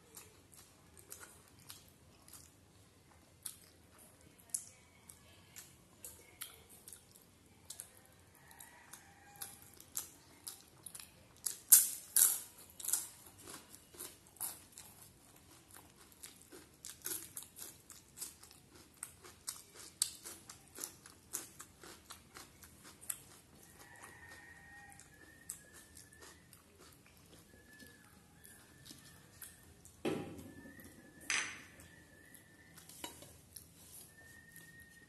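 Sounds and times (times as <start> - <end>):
person chewing crunchy food: 0.0 - 4.6, 8.8 - 30.0.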